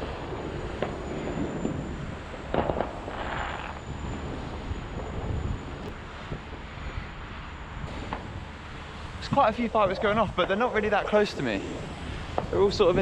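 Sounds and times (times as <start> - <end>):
distant fireworks bangs: 0.0 - 5.4
hissing crackle: 0.0 - 13.0
steady low rumble: 0.0 - 13.0.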